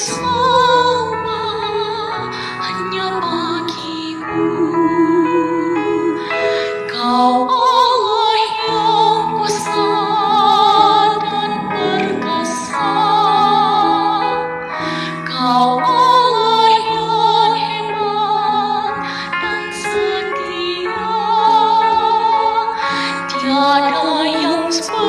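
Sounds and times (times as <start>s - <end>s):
church choir singing: 0.0s - 3.8s, 7.3s - 14.7s.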